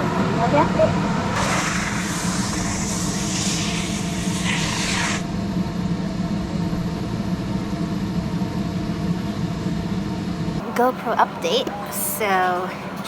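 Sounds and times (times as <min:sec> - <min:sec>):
mechanical hum: 0:00.0 - 0:13.0
hissing rush: 0:01.3 - 0:05.4.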